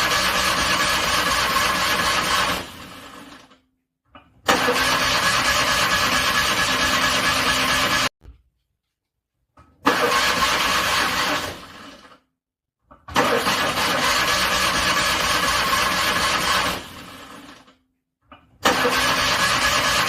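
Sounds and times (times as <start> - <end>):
car engine cranking: 4.5 - 8.1, 9.8 - 11.8, 13.1 - 17.5, 18.6 - 20.0.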